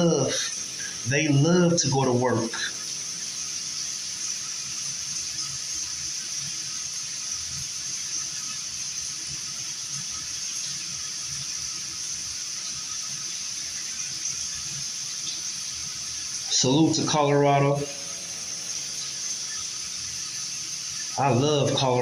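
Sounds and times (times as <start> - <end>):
steady high hiss: 0.0 - 22.0.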